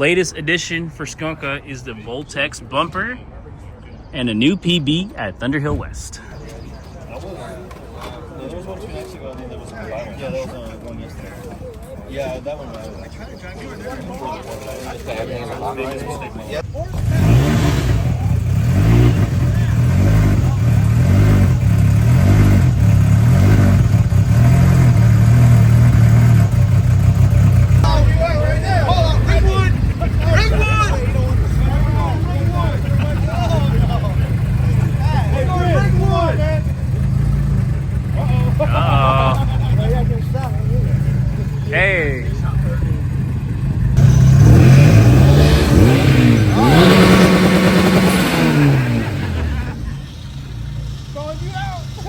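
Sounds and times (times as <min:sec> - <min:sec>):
car engine revving: 0:16.6 - 0:52.0.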